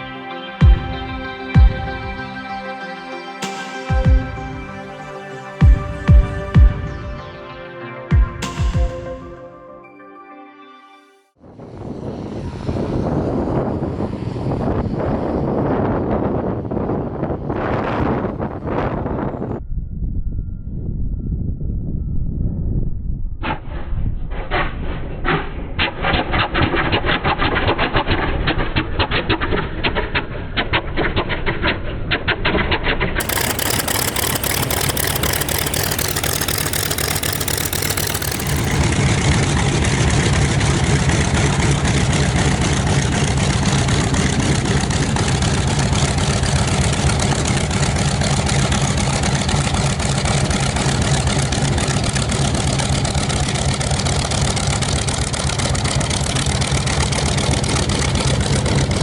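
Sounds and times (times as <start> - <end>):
piston engine running: 33.2 - 39.0.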